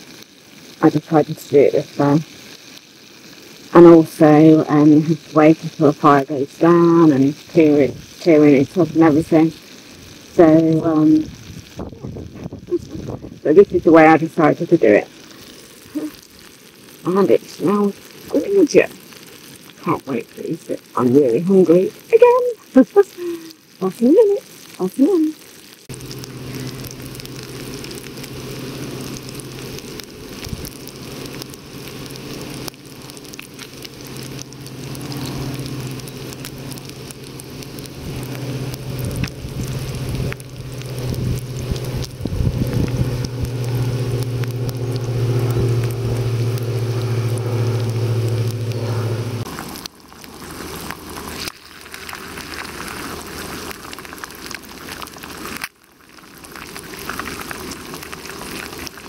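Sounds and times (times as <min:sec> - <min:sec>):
bacon sizzling in a pan: 0:00.0 - 0:59.0
hash browns and egg sizzling: 0:00.0 - 0:59.0
steady low hum: 0:25.9 - 0:49.6.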